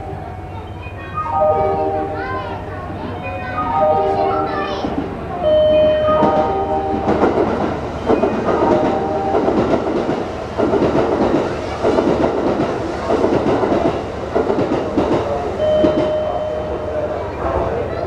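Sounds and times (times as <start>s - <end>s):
train wheels clattering over joints: 6.0s - 16.2s.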